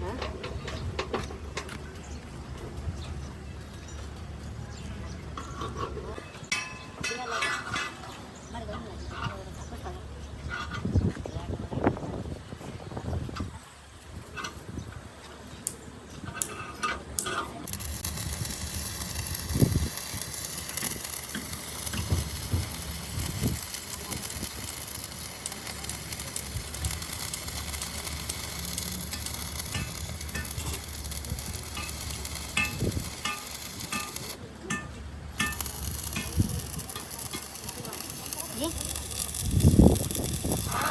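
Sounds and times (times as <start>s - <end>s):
electric welding arc crackling: 17.6s - 34.4s, 35.4s - 40.9s.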